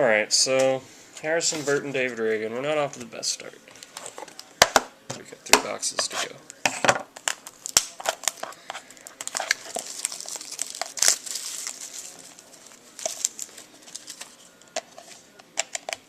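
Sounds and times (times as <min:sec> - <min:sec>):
packaging crinkling and tearing: 0:07.2 - 0:14.7.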